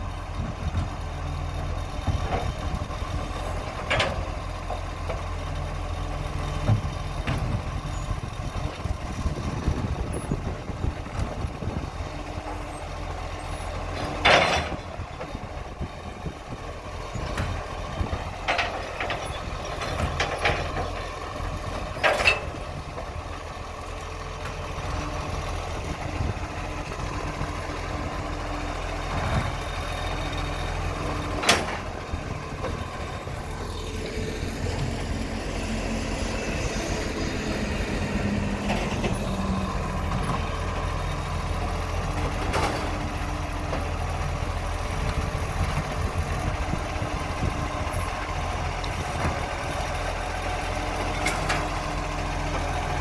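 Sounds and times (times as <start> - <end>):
truck engine running: 0.0 - 53.0
low rising tone: 33.3 - 40.3.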